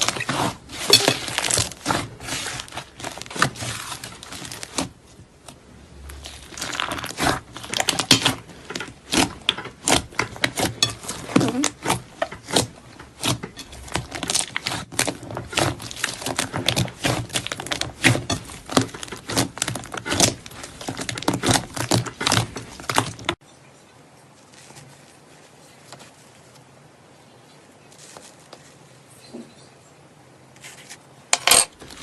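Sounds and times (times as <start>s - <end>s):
faint room hiss: 23.4s - 31.8s.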